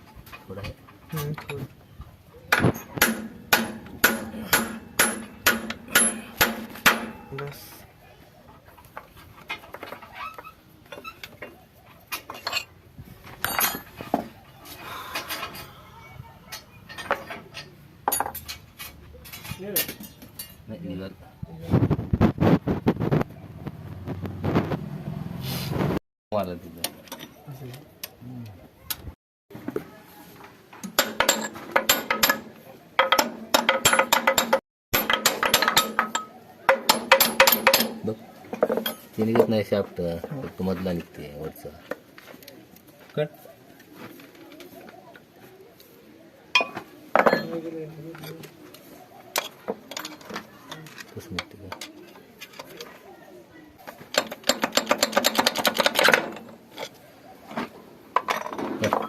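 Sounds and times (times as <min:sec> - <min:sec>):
metal tools clinking and knocking: 0:02.5 - 0:07.7, 0:08.8 - 0:15.8, 0:16.5 - 0:20.7, 0:26.8 - 0:28.2, 0:30.8 - 0:39.7, 0:46.6 - 0:48.5, 0:49.3 - 0:52.9, 0:53.8 - 0:59.0.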